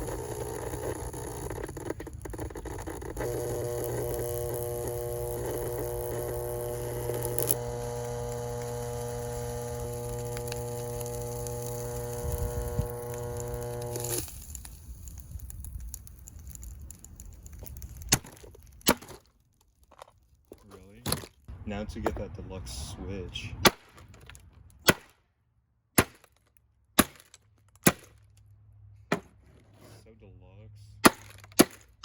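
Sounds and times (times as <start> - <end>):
fan motor buzzing: 0.0 - 14.5.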